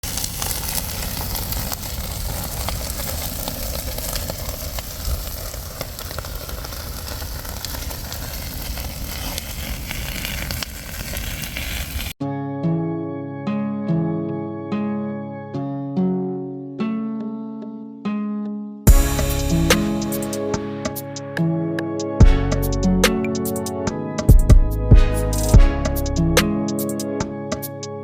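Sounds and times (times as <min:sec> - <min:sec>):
fire crackling and hissing: 0:00.0 - 0:12.2, 0:18.9 - 0:21.2, 0:22.2 - 0:23.8, 0:25.2 - 0:27.0
steady low rumble: 0:18.9 - 0:20.6.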